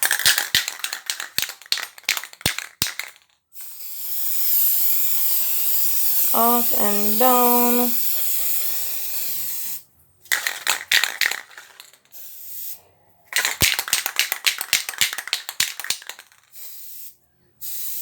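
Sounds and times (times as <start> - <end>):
spray can clicking and rattling: 0.0 - 18.0
spray can hissing: 2.5 - 12.8, 13.9 - 18.0.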